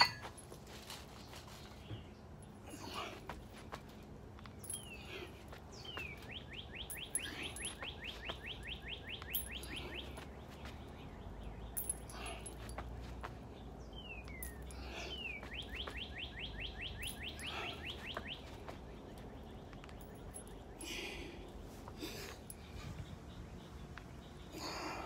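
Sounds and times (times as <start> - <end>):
songbird trilling song: 4.4 - 21.6, 22.3 - 25.0.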